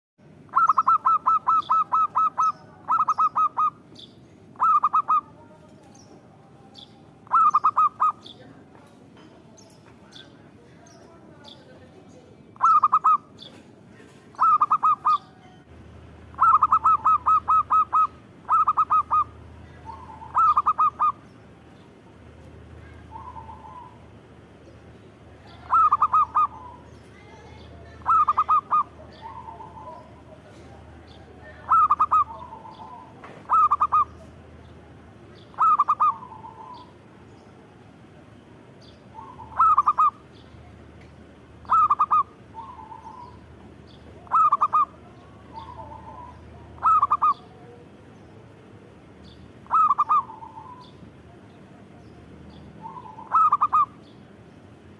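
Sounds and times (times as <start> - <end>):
dove cooing: 0.5 - 5.8, 7.0 - 8.5, 12.6 - 15.4, 16.3 - 21.3, 22.9 - 24.2, 25.3 - 26.9, 27.5 - 34.4, 35.4 - 37.0, 39.1 - 40.8, 41.6 - 47.8, 49.6 - 52.0, 52.8 - 54.1.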